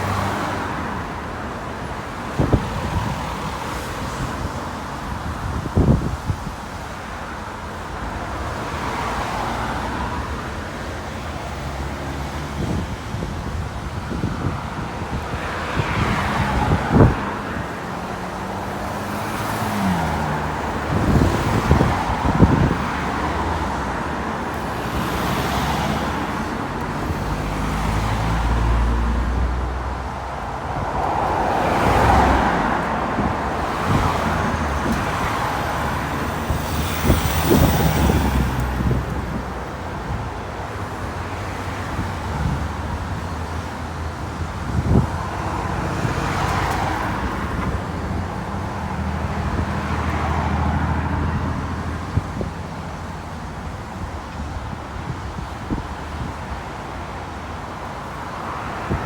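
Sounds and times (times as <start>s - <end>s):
cars and buses passing: 0.0s - 59.0s.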